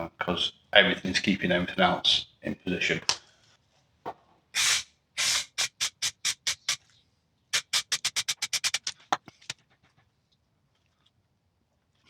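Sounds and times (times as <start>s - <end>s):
aerosol can spraying: 4.6s - 6.8s, 7.6s - 9.1s.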